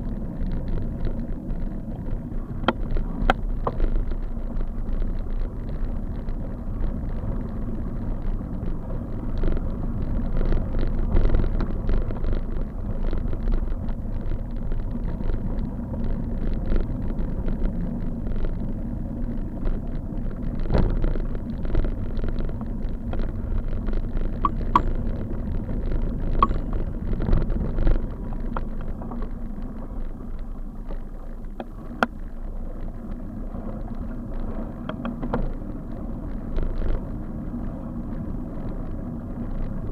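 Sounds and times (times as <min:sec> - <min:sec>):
road rumble: 0:00.0 - 0:39.9
wind: 0:00.0 - 0:39.9
knocks and rattles over bumps: 0:19.3 - 0:32.2.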